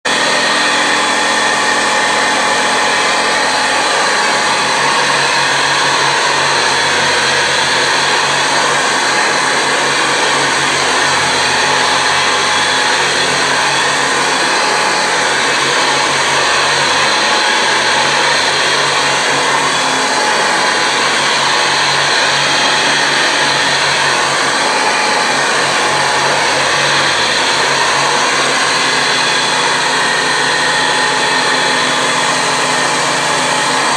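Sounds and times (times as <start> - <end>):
vacuum cleaner running: 0.0 - 33.9.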